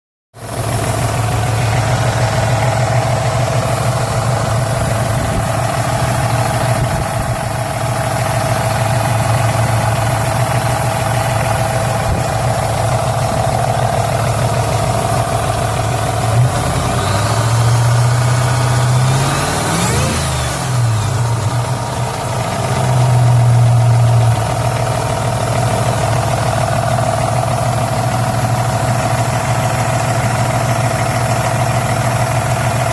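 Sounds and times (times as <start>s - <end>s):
car engine idling with lifter noise: 0.4s - 32.9s
engine revving: 14.3s - 24.6s.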